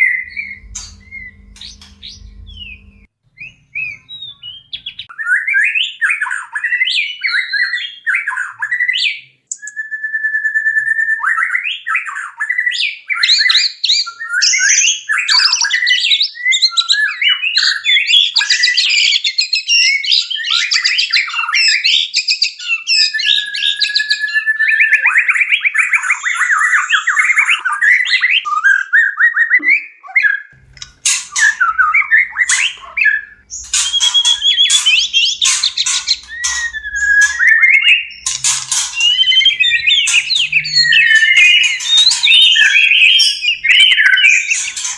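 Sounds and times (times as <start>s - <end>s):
faint low hum: 0.0s - 5.0s
songbird whistles and trills: 0.0s - 17.6s, 22.4s - 44.9s.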